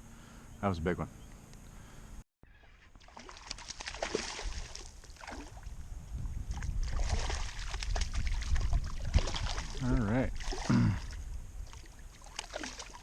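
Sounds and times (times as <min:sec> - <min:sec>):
water splashing against a kayak: 0:02.5 - 0:05.7, 0:06.4 - 0:13.0.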